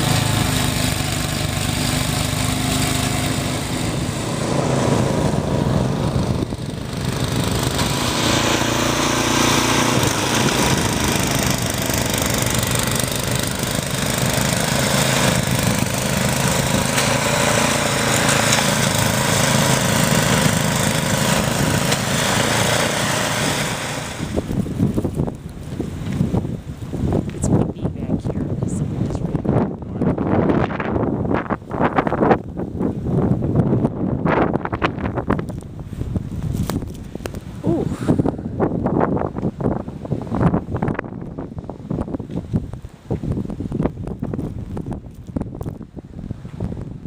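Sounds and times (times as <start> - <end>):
snowblower engine running: 0.0 - 27.6.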